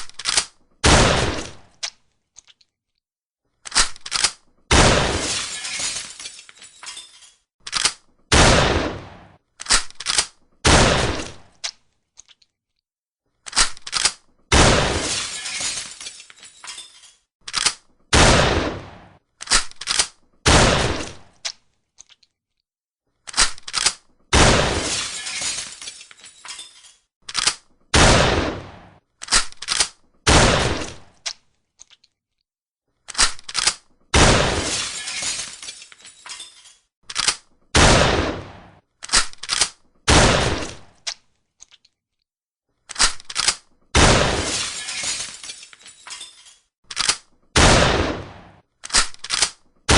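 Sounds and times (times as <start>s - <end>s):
shotgun shots echoing: 0.8s - 1.6s, 4.7s - 5.3s, 8.3s - 9.4s, 10.6s - 11.4s, 14.5s - 15.1s, 18.1s - 19.2s, 20.5s - 21.2s, 24.3s - 24.9s, 28.0s - 29.0s, 30.3s - 31.0s, 34.2s - 34.8s, 37.8s - 38.8s, 40.1s - 40.9s, 44.0s - 44.5s, 47.6s - 48.6s
shotgun pump racking: 39.0s - 39.8s, 46.9s - 47.3s, 48.8s - 49.6s.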